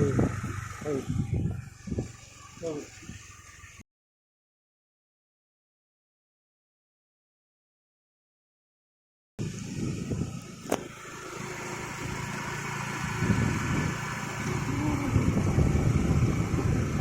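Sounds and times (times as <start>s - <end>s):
engine running steadily: 0.0s - 3.8s, 9.4s - 17.0s.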